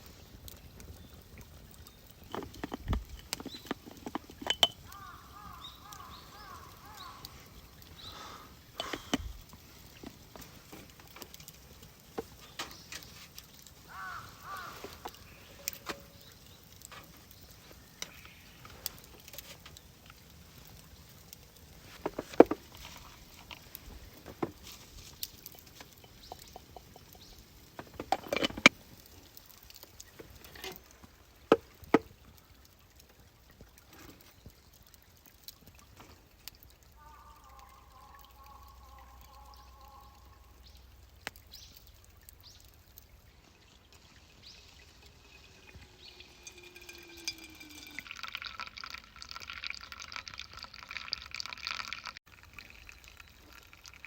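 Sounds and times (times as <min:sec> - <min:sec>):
liquid poured into container: 0:42.1 - 0:54.0.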